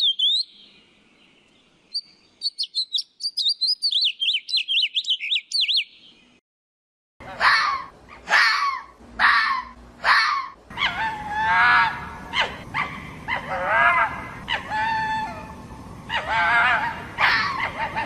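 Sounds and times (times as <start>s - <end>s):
fox whining calls: 7.4s - 18.0s.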